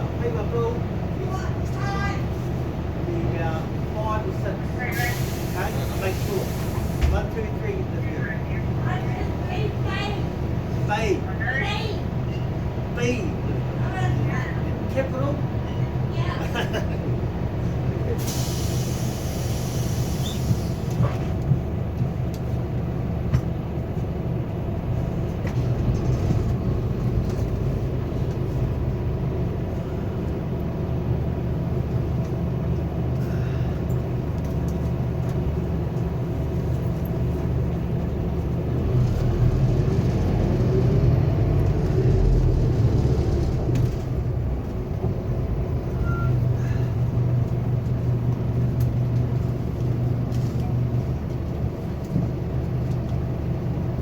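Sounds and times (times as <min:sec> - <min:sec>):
bus engine running: 0:00.0 - 0:54.0
road and body rumble: 0:00.0 - 0:54.0.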